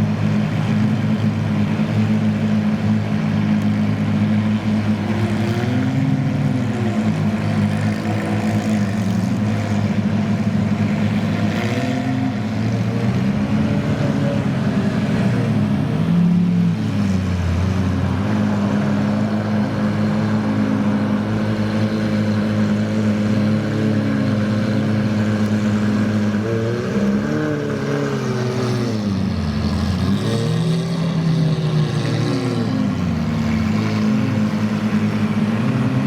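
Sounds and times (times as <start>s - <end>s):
car engine idling and revving: 0.0s - 36.0s.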